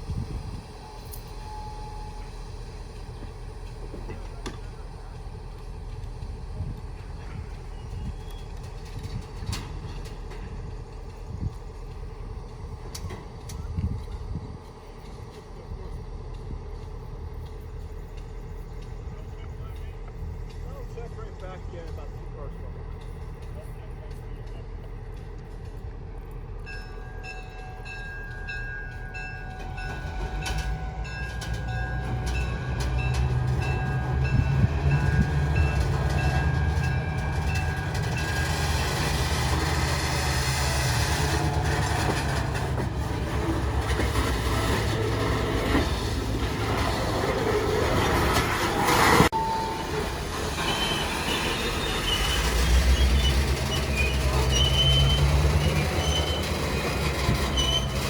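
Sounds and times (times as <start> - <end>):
rumble of train passing: 0.0 - 58.0
thin wheel squeal: 49.4 - 58.0.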